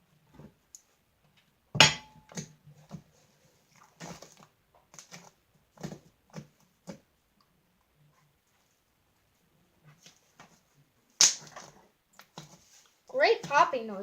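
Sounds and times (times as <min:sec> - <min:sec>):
slime squelching and popping: 0:11.2 - 0:12.5.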